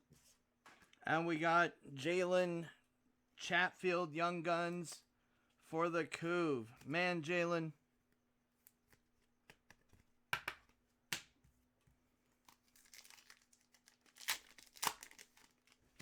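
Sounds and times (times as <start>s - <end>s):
cards snapping and clicking: 8.8s - 11.3s
wrappers torn and crinkled: 12.4s - 16.0s.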